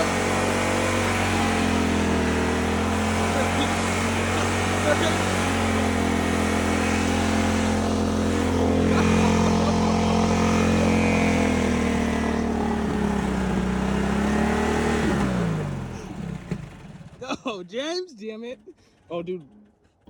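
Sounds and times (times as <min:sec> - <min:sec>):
riding lawnmower engine running: 0:00.0 - 0:17.9.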